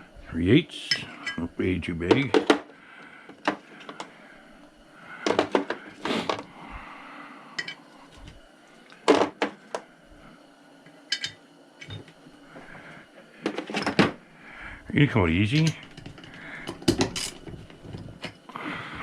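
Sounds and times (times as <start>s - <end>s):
steel sockets clinking: 11.1s - 12.0s.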